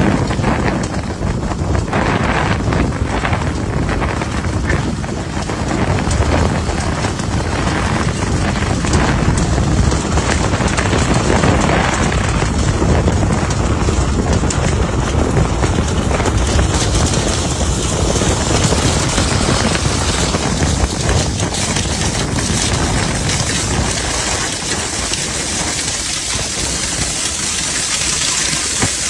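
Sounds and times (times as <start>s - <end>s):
vacuum machine air rushing: 0.0s - 29.0s.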